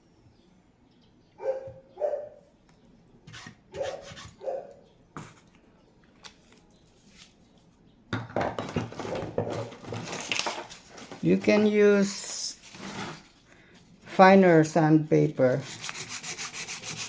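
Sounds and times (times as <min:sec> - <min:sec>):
dog barking: 0:01.4 - 0:02.4, 0:03.7 - 0:04.8.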